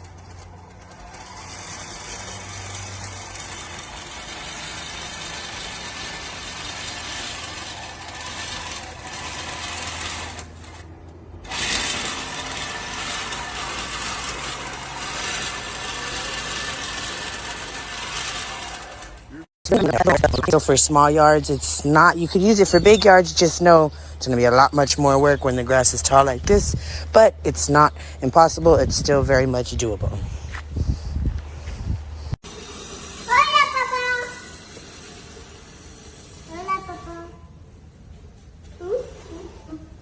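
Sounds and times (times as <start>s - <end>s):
push reel mower cutting grass: 0.0s - 10.8s.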